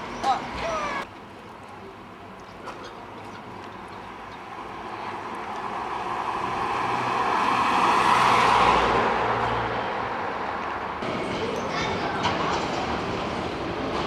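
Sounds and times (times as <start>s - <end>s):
train passing: 3.8s - 14.0s.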